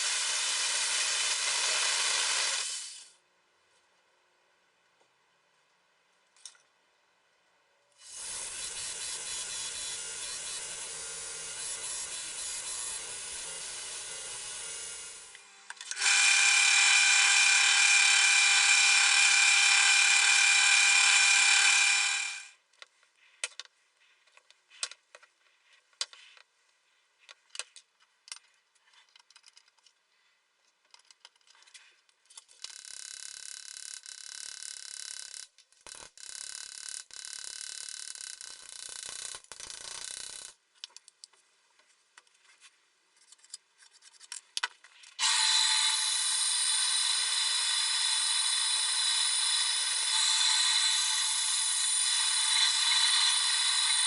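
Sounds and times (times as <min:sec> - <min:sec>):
power tool whining: 0:08.0 - 0:22.6, 0:45.2 - 0:54.0.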